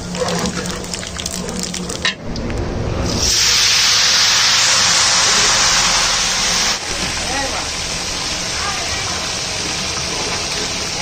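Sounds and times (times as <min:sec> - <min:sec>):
loud steady sizzle: 0:03.0 - 0:11.0
spices crackling in hot oil: 0:03.2 - 0:11.0.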